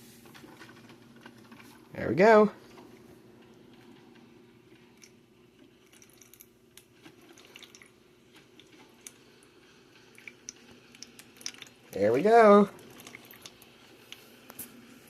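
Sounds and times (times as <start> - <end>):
low steady hum: 0.0 - 15.0
coffee maker drips and ticks: 5.8 - 12.0, 12.8 - 14.2.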